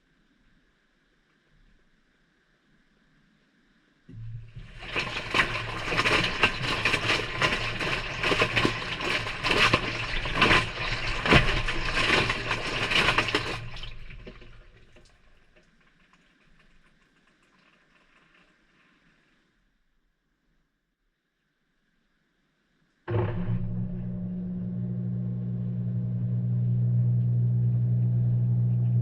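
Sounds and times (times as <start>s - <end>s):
washing machine motor hum: 4.1s - 14.6s, 23.1s - 29.0s
water and clothes sloshing: 4.3s - 19.5s.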